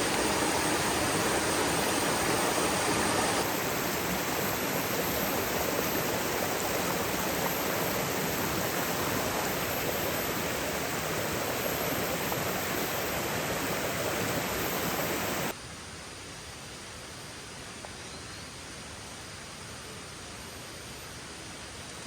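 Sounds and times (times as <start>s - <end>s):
rushing water: 0.0s - 15.6s.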